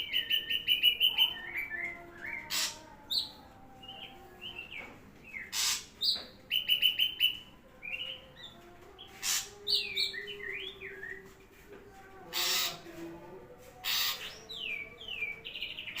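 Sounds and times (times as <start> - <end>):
harsh hissing bird notes: 5.5 - 6.0, 9.2 - 9.5.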